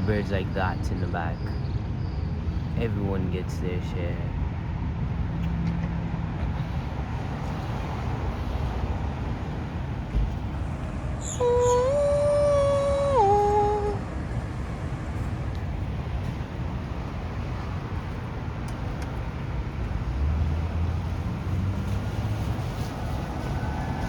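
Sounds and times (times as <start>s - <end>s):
city traffic rumble: 0.0s - 24.0s
low engine hum: 0.0s - 24.0s
held pitched tone: 11.2s - 14.4s.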